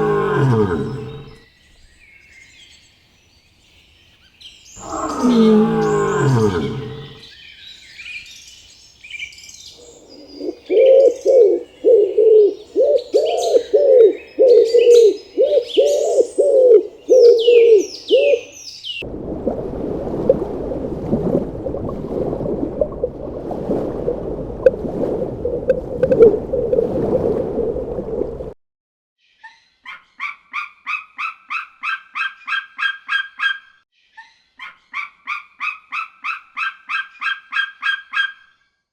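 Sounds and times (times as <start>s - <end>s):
birds chirping: 0.0s - 1.4s, 4.7s - 7.8s, 9.6s - 19.0s
loud low animal calls: 0.0s - 1.4s, 4.8s - 7.2s
rapid repeated animal calls: 4.8s - 7.2s.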